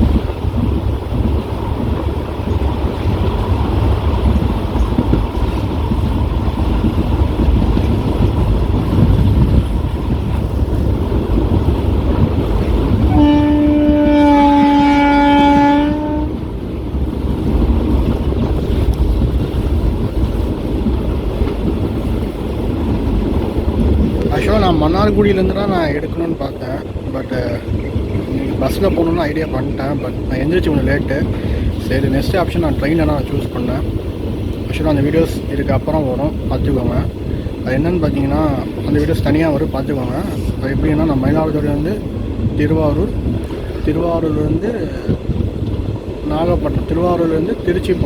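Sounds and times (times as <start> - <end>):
train wheels rumbling on track: 0.0 - 48.0
train horn blast: 13.0 - 16.5.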